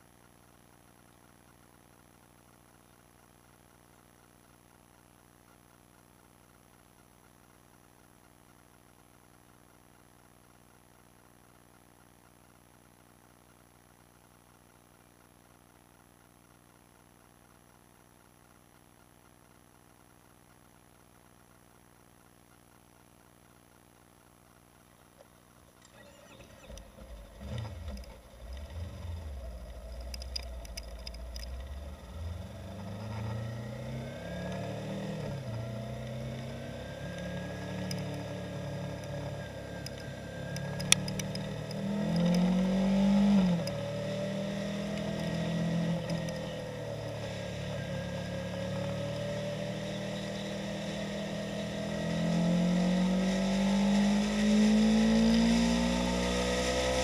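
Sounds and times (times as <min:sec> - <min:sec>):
motorcycle engine accelerating: 0:25.8 - 0:57.0
sharp click: 0:39.8 - 0:42.5.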